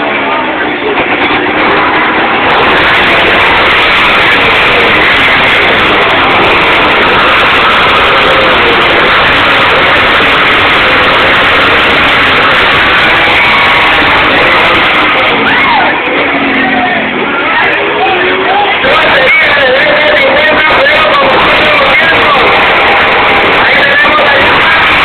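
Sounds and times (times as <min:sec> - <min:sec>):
two-stroke motorcycle engines: 0:00.0 - 0:25.0.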